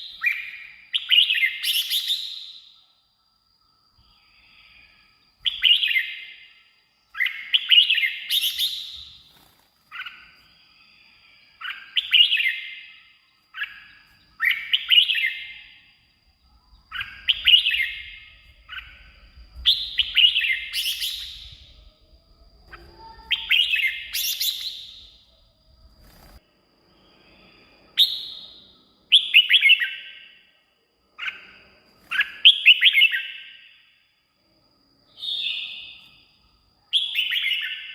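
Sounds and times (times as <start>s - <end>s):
bird singing warbled phrases: 0.0s - 2.8s, 4.1s - 25.4s, 27.9s - 30.6s, 31.2s - 34.0s, 35.1s - 37.9s.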